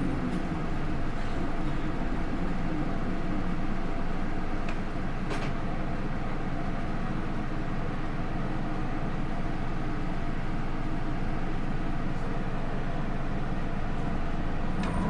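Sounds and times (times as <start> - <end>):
bus engine droning: 0.0 - 5.3, 10.8 - 15.0.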